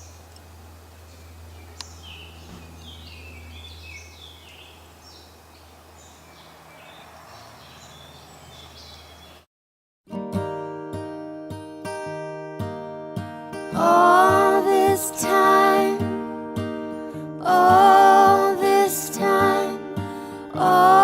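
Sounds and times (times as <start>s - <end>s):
steady low hum: 0.0s - 6.7s
bird chirps and calls: 1.0s - 9.4s
acoustic guitar music: 10.1s - 21.0s.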